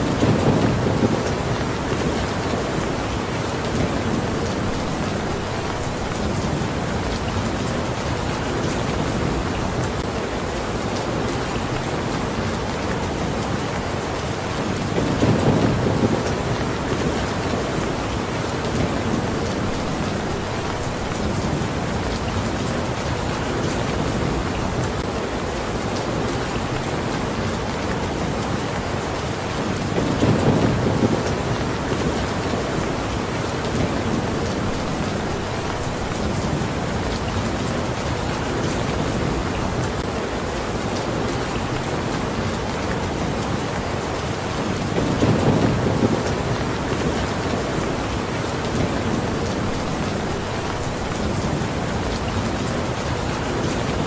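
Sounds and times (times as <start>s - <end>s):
low rumble of thunder: 0.0s - 10.0s, 14.9s - 25.0s, 29.9s - 40.1s, 44.9s - 54.0s
raindrops ticking on a surface: 0.0s - 54.0s.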